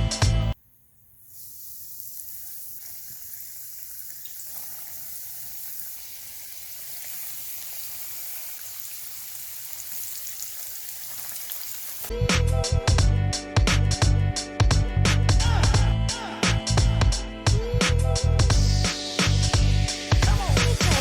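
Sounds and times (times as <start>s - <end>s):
food sizzling in hot oil: 0.6s - 12.1s, 18.6s - 21.0s.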